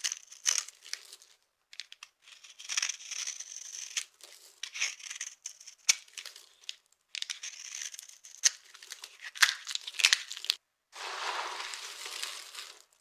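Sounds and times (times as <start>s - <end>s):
soap crunching: 7.6s - 13.0s.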